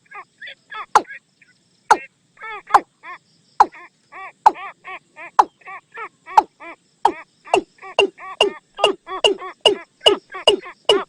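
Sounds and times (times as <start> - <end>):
watercock decoy calls: 7.1 - 11.0.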